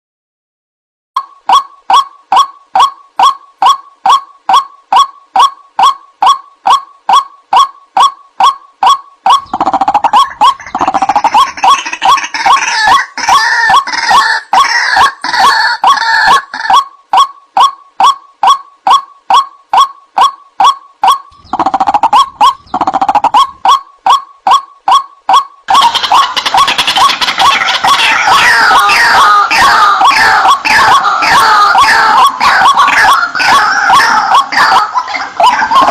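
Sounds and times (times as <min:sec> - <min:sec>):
waterhen repeated call: 0:01.2 - 0:35.9
harsh bird squawks: 0:01.5 - 0:35.9.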